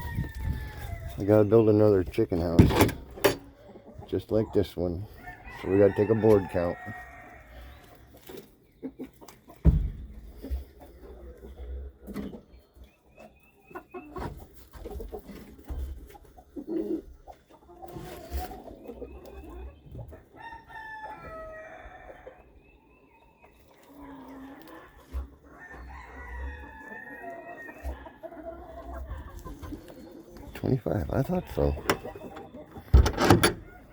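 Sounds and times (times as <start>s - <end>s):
rooster crowing: 0.0s - 1.1s
chickens clucking: 0.0s - 33.9s.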